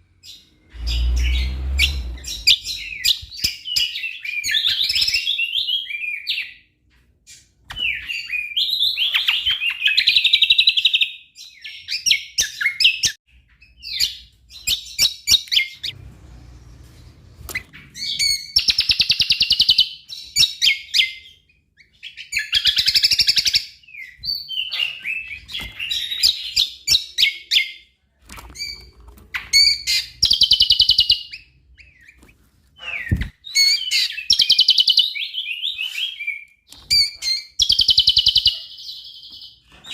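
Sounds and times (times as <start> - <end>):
bird singing trills and whistles: 0.2 - 6.6, 28.6 - 32.2, 32.8 - 39.9.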